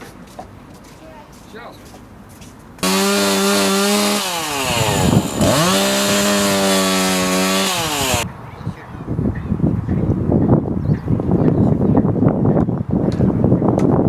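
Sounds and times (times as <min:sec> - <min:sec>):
chainsaw running at high revs: 0:02.8 - 0:08.2.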